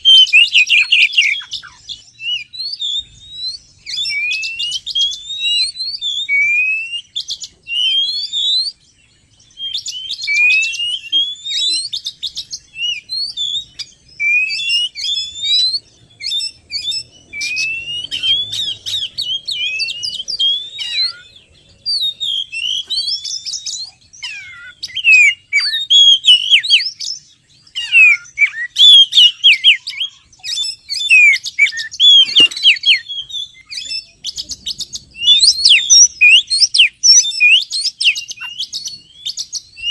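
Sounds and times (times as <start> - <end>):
bird singing whistled phrases: 0.0 - 39.9
sharp bird chattering notes: 9.6 - 39.9.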